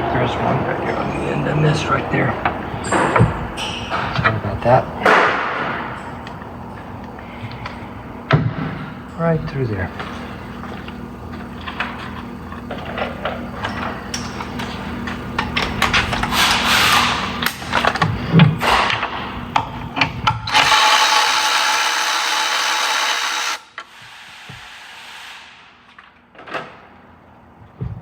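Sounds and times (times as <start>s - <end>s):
power tool running: 20.4s - 25.6s.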